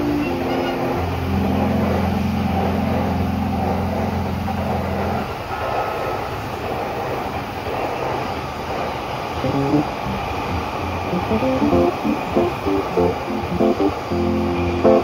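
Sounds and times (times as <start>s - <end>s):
electric train rumble: 0.0s - 15.0s
low steady hum: 9.4s - 15.0s.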